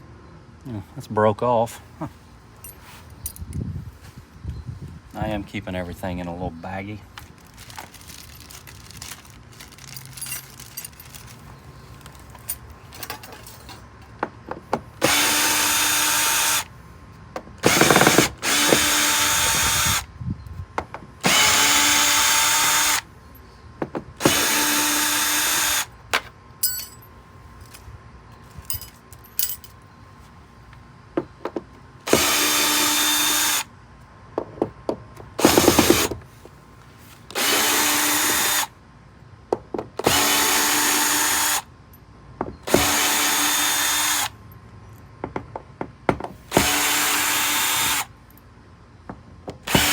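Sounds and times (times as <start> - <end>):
handling clicks and knocks: 7.1 - 14.9, 28.6 - 29.8, 31.2 - 31.8
cordless drill running: 15.0 - 16.7, 17.6 - 20.1, 21.2 - 23.1, 24.2 - 25.9, 32.1 - 33.7, 35.4 - 36.2, 37.3 - 38.7, 40.0 - 41.6, 42.7 - 44.3, 46.5 - 48.1, 49.7 - 49.9.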